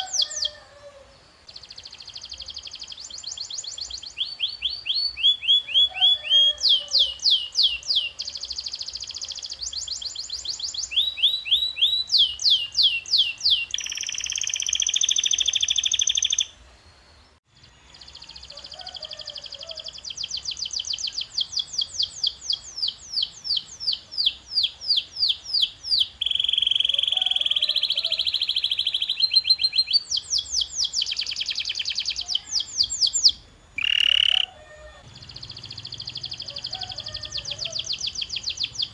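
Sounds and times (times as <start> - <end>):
canary singing trills: 0.0 - 0.8, 1.4 - 16.6, 17.9 - 38.9.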